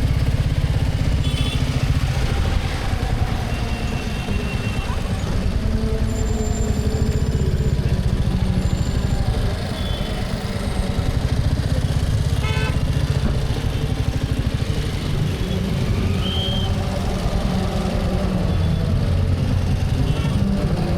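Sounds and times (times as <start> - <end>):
wind and road noise: 0.0 - 6.2
motorcycle engine running: 0.0 - 20.9
vehicle horn: 1.2 - 1.9, 12.4 - 13.0.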